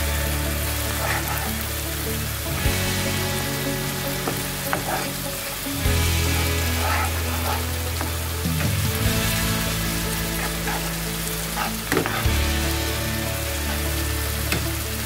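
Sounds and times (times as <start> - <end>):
masala sizzling in a frying pan: 0.0 - 15.0
spatula stirring and scraping: 0.9 - 1.7, 4.2 - 5.2, 5.9 - 12.5.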